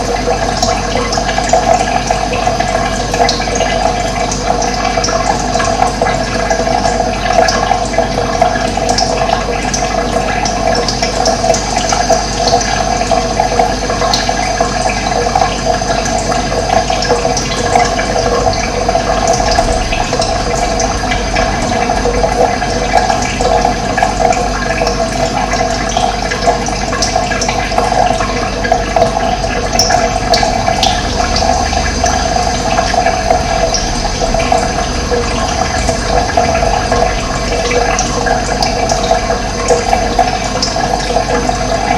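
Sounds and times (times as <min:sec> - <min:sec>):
running water: 0:00.0 - 0:41.9.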